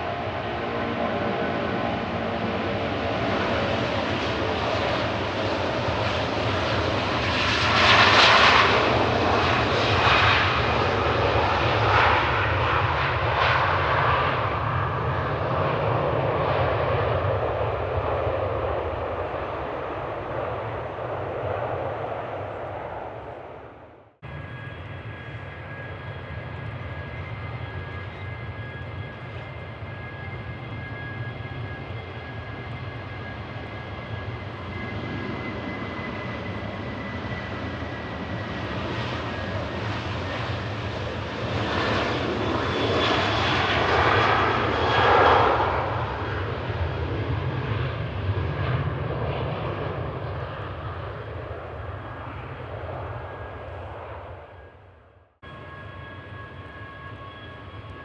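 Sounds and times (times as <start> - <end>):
jet airliner passing: 0.0 - 58.0
high engine whine: 12.7 - 58.0.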